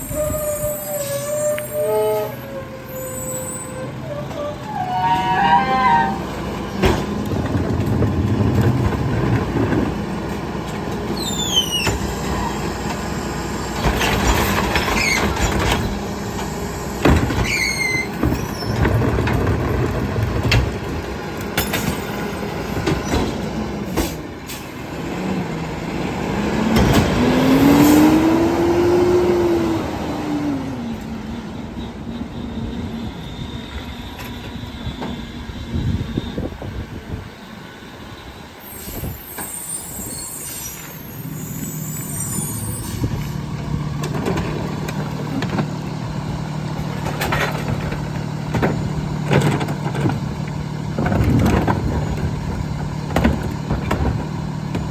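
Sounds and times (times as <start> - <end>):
high metal squeals: 0.0 - 6.4, 11.2 - 12.7, 14.4 - 15.6, 16.6 - 18.9, 38.1 - 43.4
hydraulic whine: 0.0 - 7.9, 26.7 - 54.9
truck engine under load: 0.0 - 54.9.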